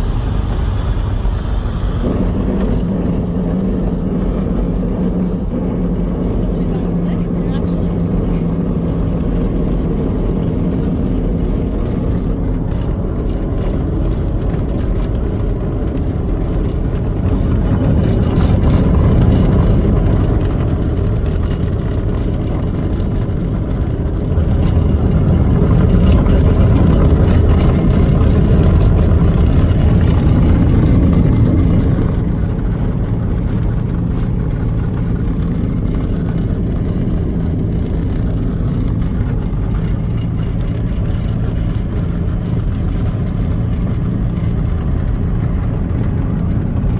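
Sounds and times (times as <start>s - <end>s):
light aircraft engine running: 0.0s - 46.9s
wind noise: 0.0s - 46.9s.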